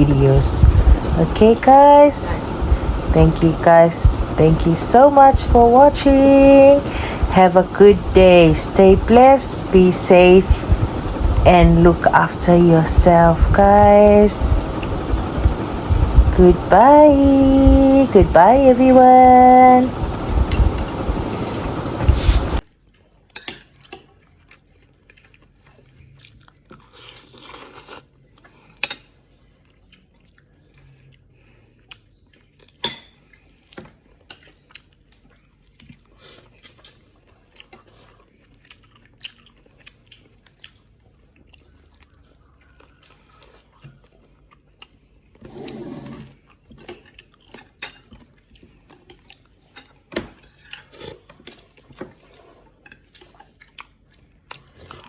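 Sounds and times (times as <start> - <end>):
close-up chewing and biting: 22.7 - 55.0.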